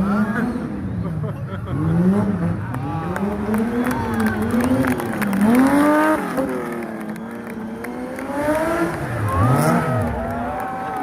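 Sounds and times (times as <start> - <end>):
car engine revving hard: 1.7 - 7.0, 7.6 - 10.4.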